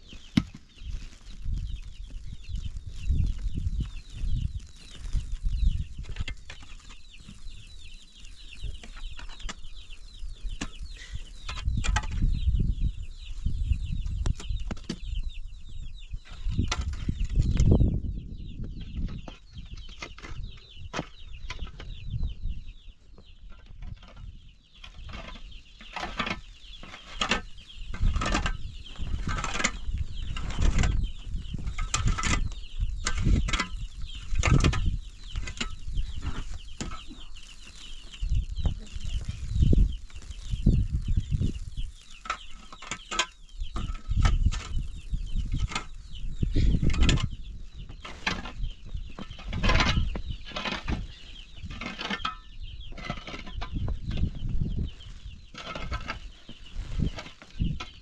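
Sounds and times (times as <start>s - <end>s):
chickens clucking and cheeping: 0.0s - 58.0s.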